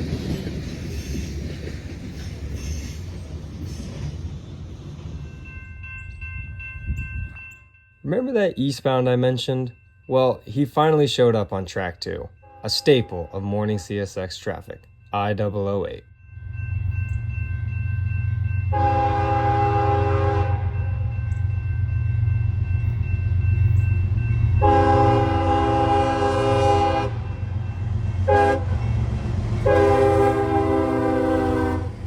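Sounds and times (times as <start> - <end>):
locomotive horn blasts: 12.4 - 14.2, 18.7 - 21.1, 24.6 - 27.4, 28.2 - 28.9, 29.6 - 32.0.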